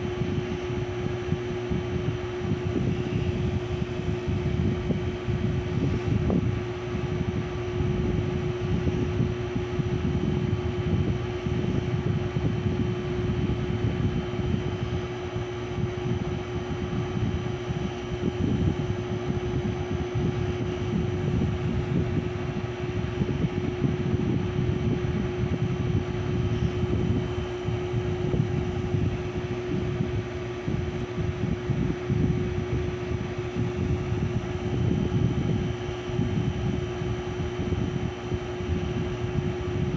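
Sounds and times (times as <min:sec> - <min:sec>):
ceiling fan humming: 0:00.0 - 0:39.9.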